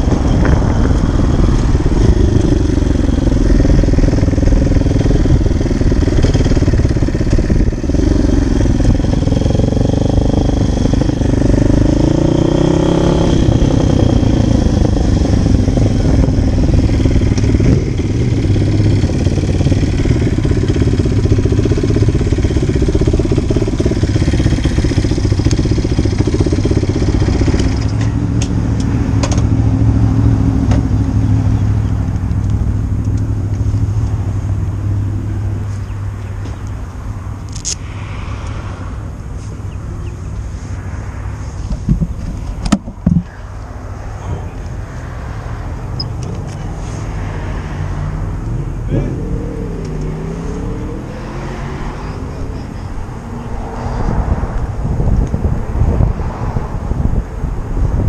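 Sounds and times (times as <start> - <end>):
wind rumble on microphone: 0.0 - 36.2, 36.9 - 58.0
dirt bike engine revving: 1.1 - 28.0.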